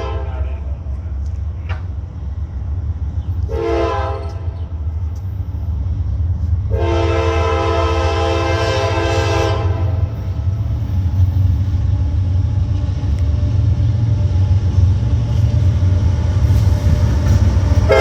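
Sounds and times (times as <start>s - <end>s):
locomotive air horn blasts: 0.0s - 0.5s, 3.5s - 4.6s, 6.7s - 10.2s
train rumbling: 0.0s - 18.0s.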